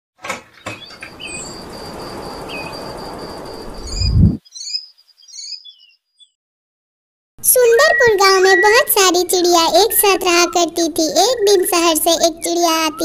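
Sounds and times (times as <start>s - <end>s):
birds chirping: 0.4s - 6.4s, 7.7s - 8.9s, 9.7s - 13.0s
thin high tone: 1.0s - 4.4s
deep low swell: 1.1s - 4.4s.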